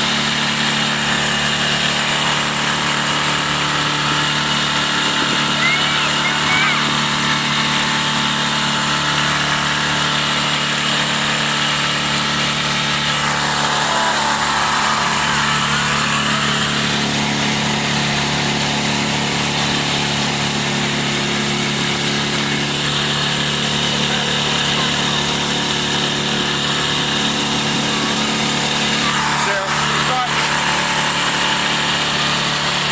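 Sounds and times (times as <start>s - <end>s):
boat engine running: 0.0s - 32.9s.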